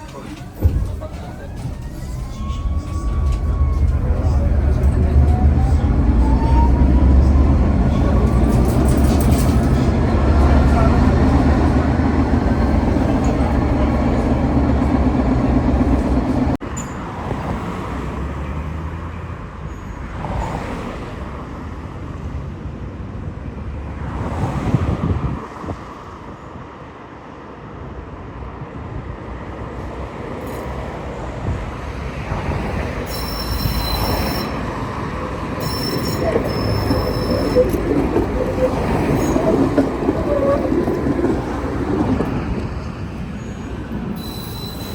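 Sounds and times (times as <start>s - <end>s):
tram low hum: 0.0s - 19.6s, 20.2s - 44.9s
tram rolling and rumbling: 0.0s - 44.9s
high-pitched wheel squeal: 1.6s - 9.9s, 33.1s - 35.0s, 35.6s - 42.2s, 43.4s - 44.9s.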